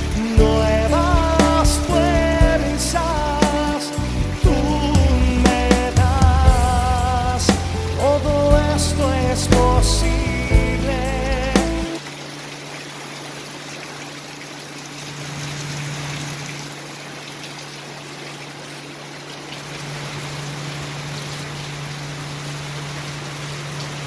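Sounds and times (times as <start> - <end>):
low steady hum: 0.0 - 11.9
steady rain: 0.0 - 24.0.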